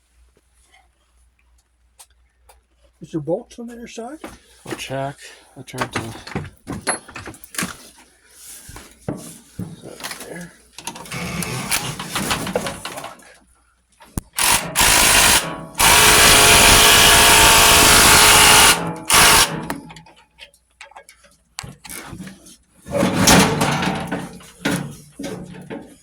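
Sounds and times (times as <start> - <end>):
impact wrench bursts: 11.1 - 12.8, 14.2 - 20.0
knocks and clatter: 22.9 - 26.0.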